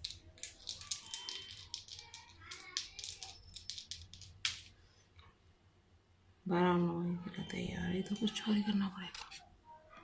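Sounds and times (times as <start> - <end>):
plastic dice rattling: 0.0 - 4.7.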